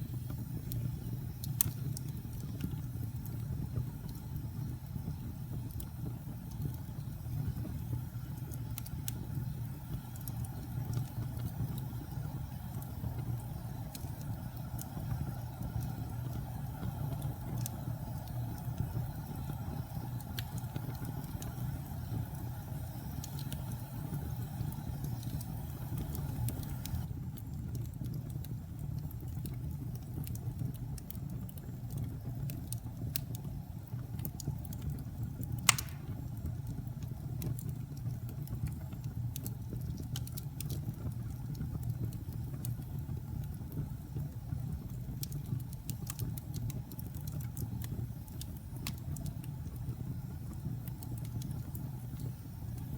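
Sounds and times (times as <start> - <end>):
fire crackling: 0.0 - 52.9
fire flames roaring: 0.0 - 52.9
loud pop of burning log: 35.6 - 36.4.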